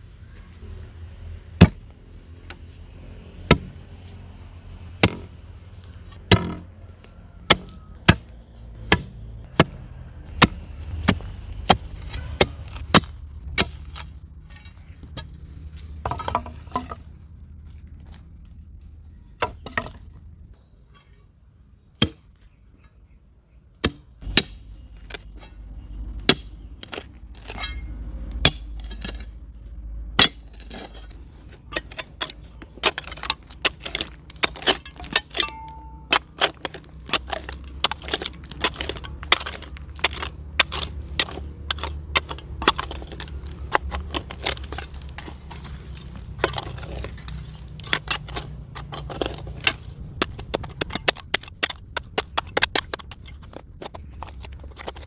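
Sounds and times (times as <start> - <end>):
low steady rumble: 0.0 - 20.6, 24.2 - 55.0
dry wood crackling and snapping: 30.2 - 55.0.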